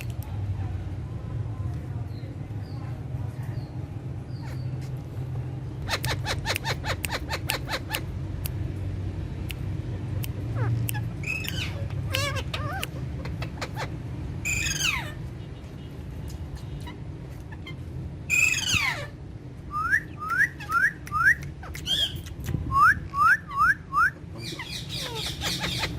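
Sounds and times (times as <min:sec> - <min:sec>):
parakeets calling: 0:03.5 - 0:05.2, 0:05.8 - 0:08.2, 0:10.3 - 0:15.8, 0:16.4 - 0:19.2, 0:19.8 - 0:22.2, 0:23.2 - 0:25.9.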